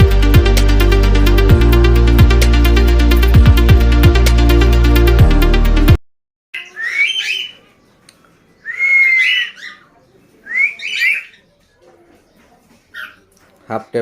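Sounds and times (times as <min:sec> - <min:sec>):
electronic music: 0:00.0 - 0:06.0
baby cockatiel calling: 0:06.6 - 0:07.6, 0:08.7 - 0:09.9, 0:10.7 - 0:11.4.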